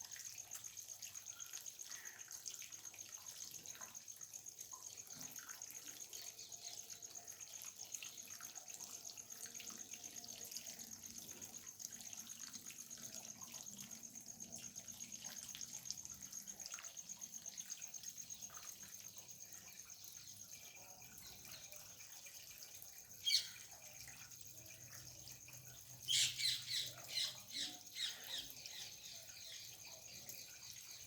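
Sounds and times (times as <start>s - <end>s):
parrot squawking: 26.1s - 27.3s.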